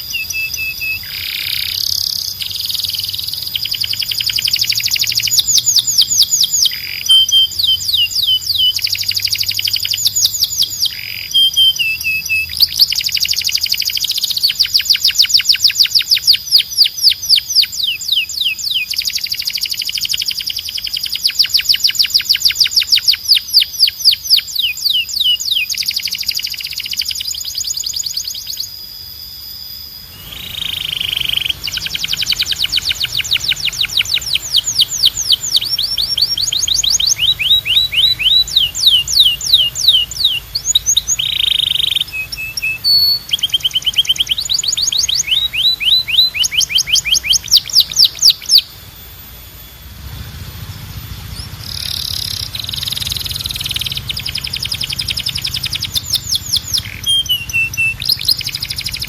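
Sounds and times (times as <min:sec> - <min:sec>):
canary singing: 0:00.0 - 0:59.0
low hum: 0:28.7 - 0:59.0.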